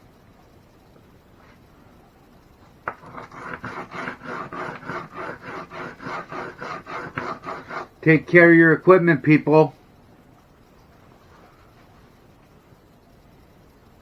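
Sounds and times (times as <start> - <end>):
rhythmic rasping strokes: 2.9 - 8.3.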